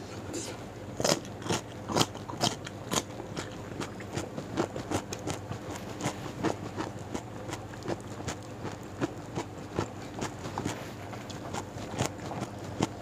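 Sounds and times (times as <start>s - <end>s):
chewing crunchy raw vegetables: 0.2s - 13.0s.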